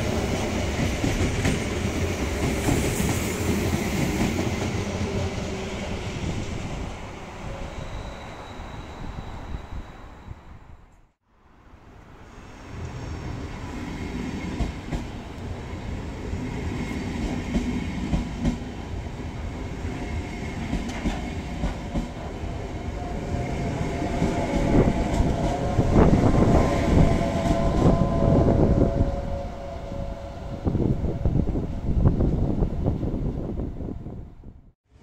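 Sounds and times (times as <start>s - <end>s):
train wheels clacking on rail joints: 20.5s - 22.4s.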